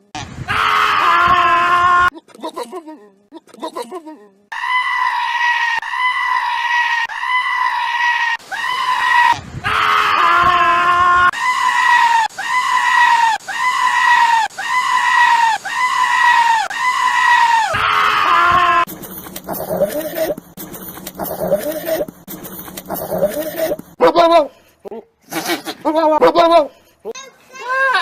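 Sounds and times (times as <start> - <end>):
goat screaming: 4.5 - 18.9.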